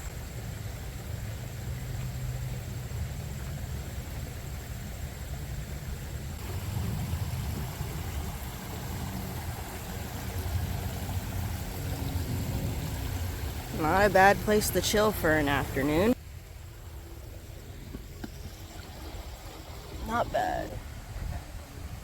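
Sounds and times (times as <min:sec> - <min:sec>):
waterfall rushing: 0:06.4 - 0:16.2, 0:18.9 - 0:21.0.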